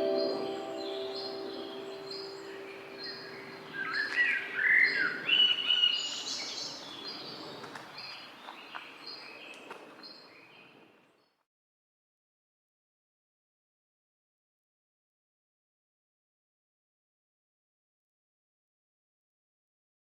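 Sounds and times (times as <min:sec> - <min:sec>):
songbirds singing: 0:00.0 - 0:11.4.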